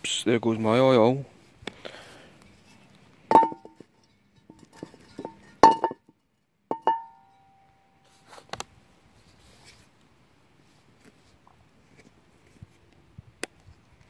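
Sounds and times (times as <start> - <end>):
metal cookware clanking: 4.4 - 6.0, 6.7 - 7.5.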